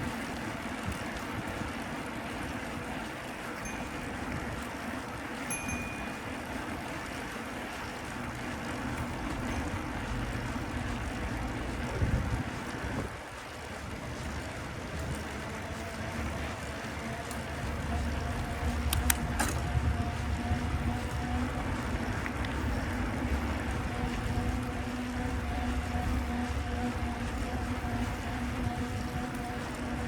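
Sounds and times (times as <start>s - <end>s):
steady hum: 0.0s - 30.0s
wind rumbling on microphone: 0.0s - 30.0s
traffic passing: 6.5s - 30.0s
sharp clicks: 18.8s - 19.6s.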